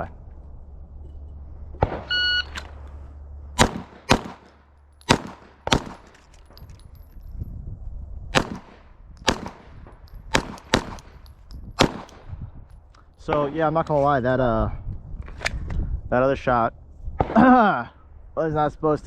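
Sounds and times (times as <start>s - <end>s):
shot timer beep: 2.1s - 2.5s
handgun shots: 3.6s - 6.2s, 8.4s - 12.3s.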